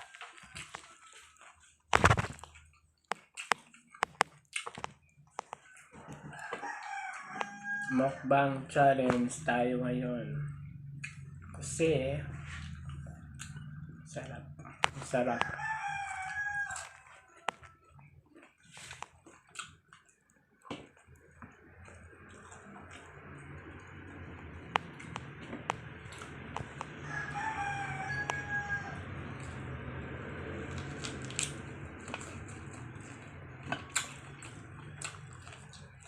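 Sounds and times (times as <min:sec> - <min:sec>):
sharp clicks from eating: 0:02.0 - 0:05.8
rooster crowing: 0:05.9 - 0:08.9, 0:15.0 - 0:18.0, 0:26.6 - 0:32.7
steady low hum: 0:21.1 - 0:36.0.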